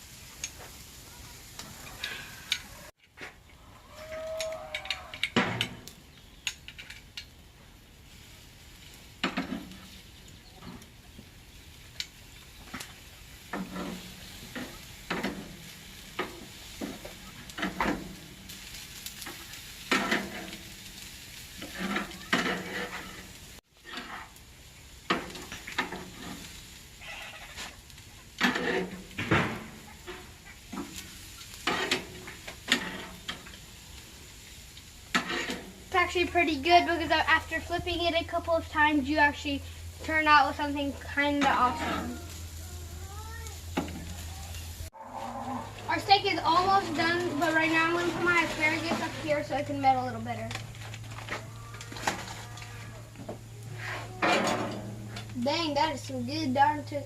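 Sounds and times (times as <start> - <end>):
meat sizzling on grill: 0.0 - 3.0, 3.9 - 57.0
metal utensils scraping grate: 13.4 - 24.4, 25.0 - 33.8, 35.0 - 42.6, 43.8 - 56.9.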